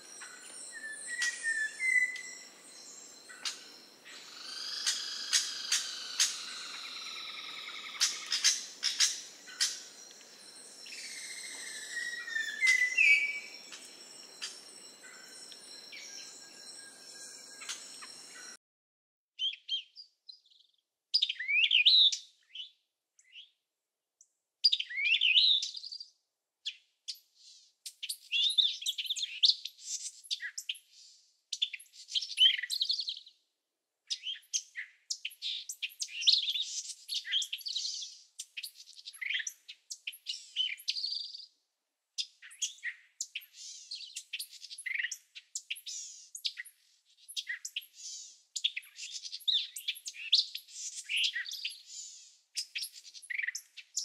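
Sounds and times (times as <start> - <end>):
birds chirping and trilling: 0.0 - 18.6, 24.6 - 26.0, 26.7 - 33.3, 34.1 - 41.6, 42.2 - 54.0.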